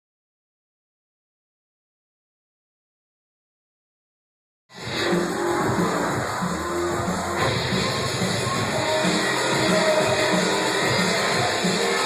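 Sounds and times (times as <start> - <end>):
drum and bass music: 4.7 - 12.0.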